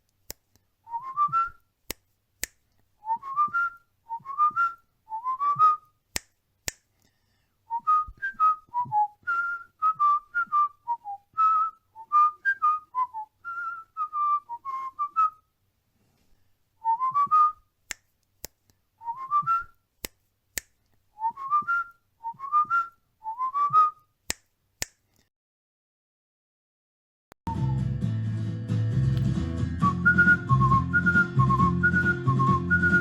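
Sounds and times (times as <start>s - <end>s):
cockatiel whistling: 29.8s - 33.0s.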